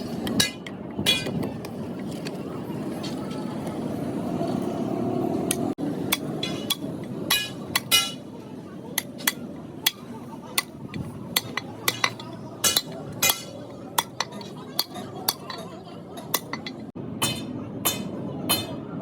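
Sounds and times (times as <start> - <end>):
hammer striking metal: 6.1 - 8.3, 9.0 - 15.6, 16.2 - 18.8.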